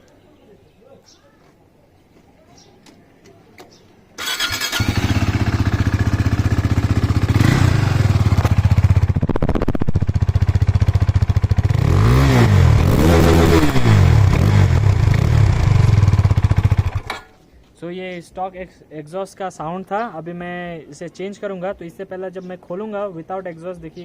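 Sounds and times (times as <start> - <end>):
motorcycle engine revving: 4.2 - 17.2
motorcycle engine starting and idling: 4.2 - 17.4.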